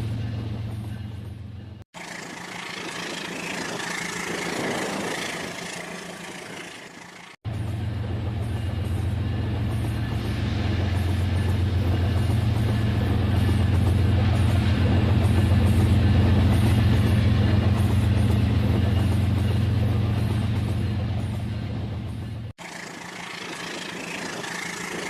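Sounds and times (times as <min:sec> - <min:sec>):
toy train running on track: 0:02.0 - 0:07.4, 0:22.6 - 0:25.0.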